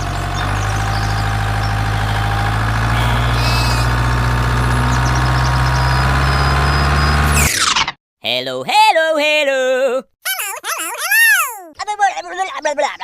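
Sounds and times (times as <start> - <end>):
small machine engine drone: 0.0 - 7.6.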